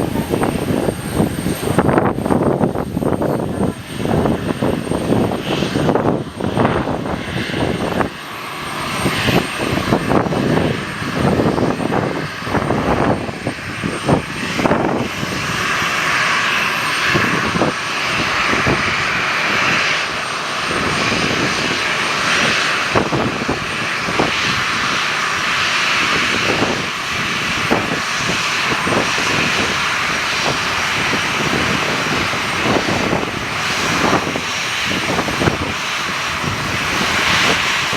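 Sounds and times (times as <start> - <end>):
aircraft engines running: 0.0 - 37.9
wind buffeting microphone: 0.0 - 37.9.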